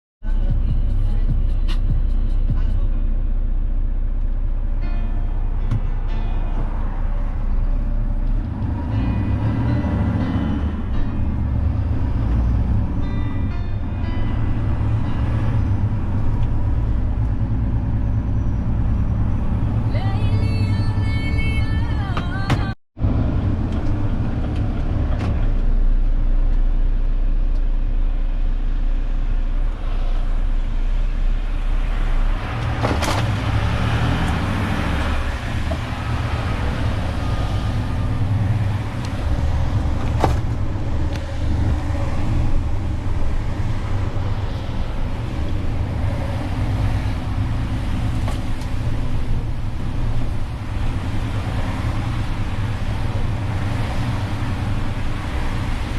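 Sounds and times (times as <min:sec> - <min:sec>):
diesel truck engine running: 0:00.2 - 0:55.9
road noise: 0:00.2 - 0:55.9.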